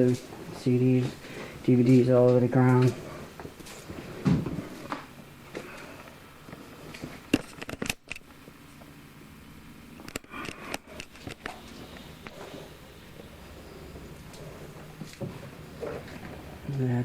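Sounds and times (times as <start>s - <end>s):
clicks and light clatter: 6.9s - 8.9s, 10.0s - 12.4s.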